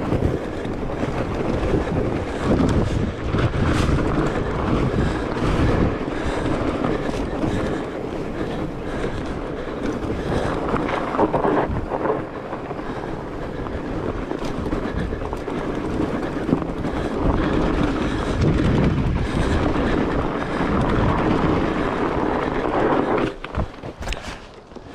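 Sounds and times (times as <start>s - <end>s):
bike tires and frame rattling: 0.0s - 24.9s
wind buffeting microphone: 0.0s - 24.9s.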